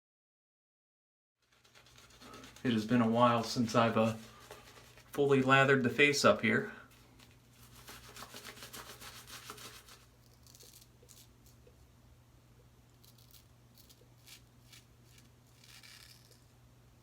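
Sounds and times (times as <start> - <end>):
razor rubbing on face: 1.4 - 5.1, 7.6 - 11.3
low steady hum: 1.4 - 17.0.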